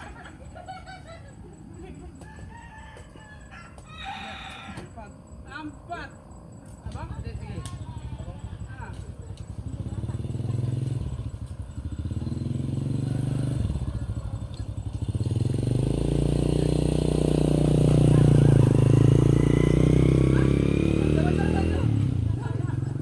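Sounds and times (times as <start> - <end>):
engine running: 6.9 - 23.0.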